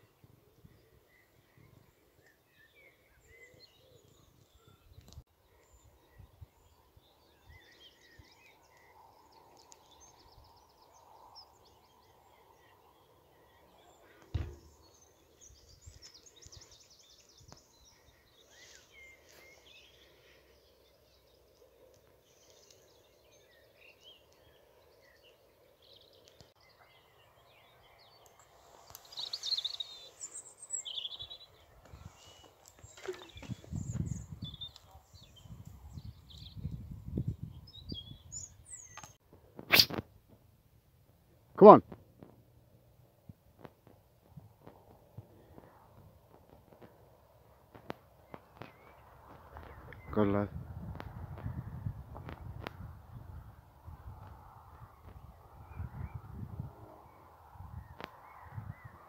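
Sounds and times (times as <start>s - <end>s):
faint birdsong: 0.0s - 59.0s
thump: 14.3s - 14.7s.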